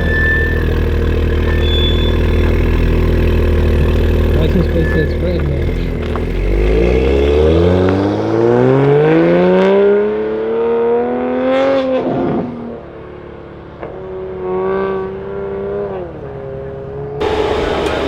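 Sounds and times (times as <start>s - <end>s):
quieter engine note: 0.0s - 9.2s, 17.2s - 18.0s
sports car accelerating past: 0.0s - 18.0s.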